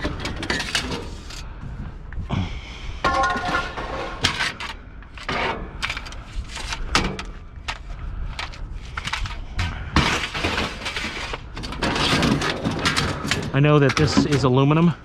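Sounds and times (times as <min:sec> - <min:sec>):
scrap metal clanking: 0:00.0 - 0:01.4, 0:03.0 - 0:07.3, 0:09.1 - 0:14.7
metal scraping: 0:03.0 - 0:07.4.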